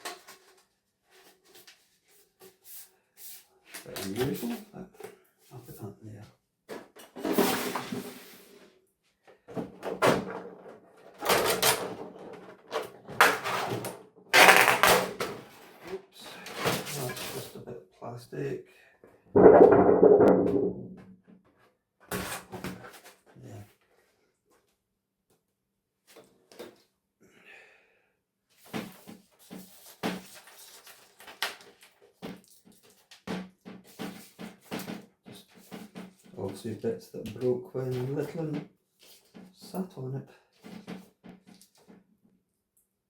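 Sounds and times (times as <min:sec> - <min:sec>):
plastic knocks and clatter: 0:09.4 - 0:15.4, 0:19.4 - 0:21.4, 0:31.2 - 0:36.4
plastic scrape: 0:11.1 - 0:17.5.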